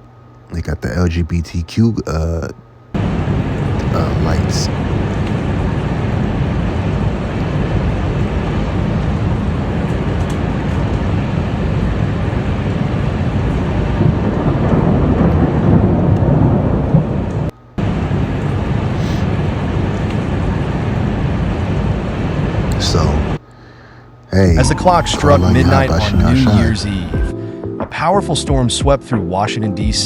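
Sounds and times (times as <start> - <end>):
thunder rumbling: 3.0 - 23.3
heavy rain: 3.0 - 23.4.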